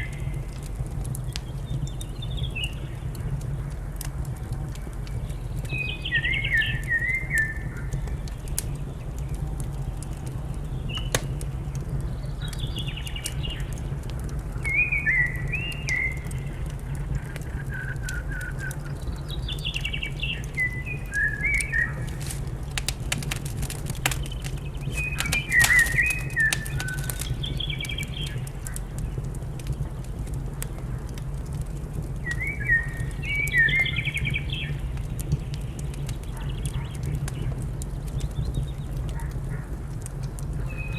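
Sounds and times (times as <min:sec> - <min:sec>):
wood fire crackling: 0:00.0 - 0:40.9
steady low rumble: 0:18.7 - 0:32.2
songbird warbling: 0:24.1 - 0:27.8.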